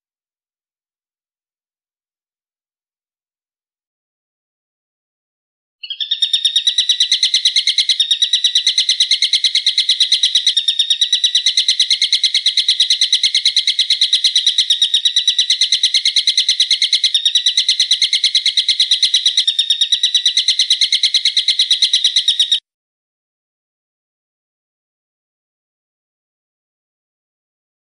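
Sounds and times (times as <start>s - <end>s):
songbird trilling: 5.8s - 22.6s.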